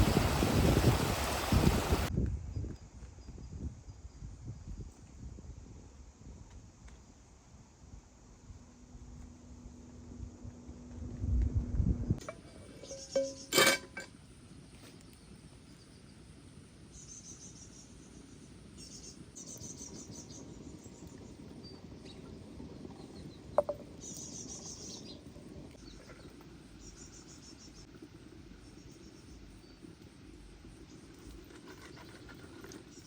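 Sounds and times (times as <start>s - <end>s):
insects chirping: 23.5s - 33.0s.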